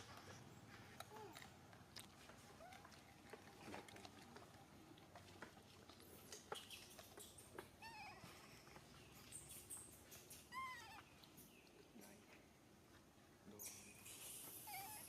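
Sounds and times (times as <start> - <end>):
baby monkey squeaky calls: 13.6 - 15.0.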